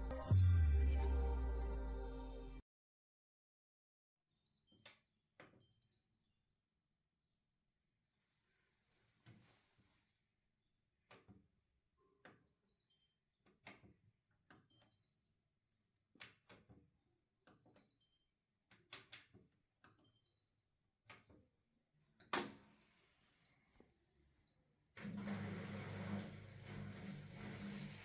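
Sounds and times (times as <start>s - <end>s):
washing machine low hum: 25.0s - 28.0s.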